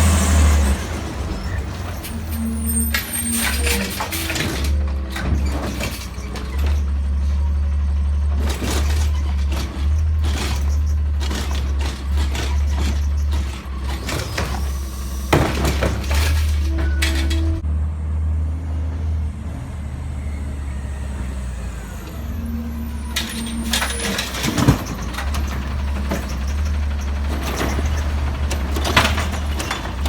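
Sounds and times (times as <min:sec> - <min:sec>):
diesel truck engine rumbling: 0:00.0 - 0:30.0
clanks and knocks: 0:01.3 - 0:07.7, 0:08.3 - 0:17.6, 0:23.2 - 0:30.0.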